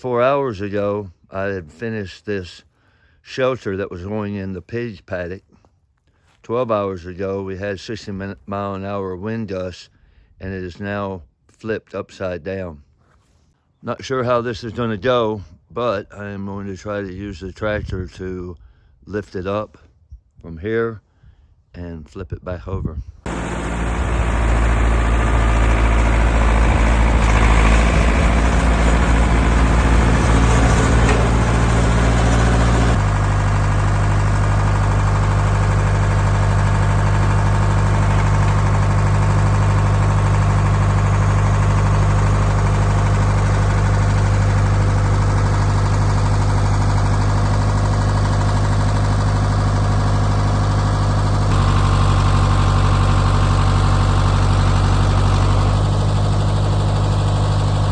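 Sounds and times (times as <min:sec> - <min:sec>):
tractor engine running: 0:23.3 - 0:57.9.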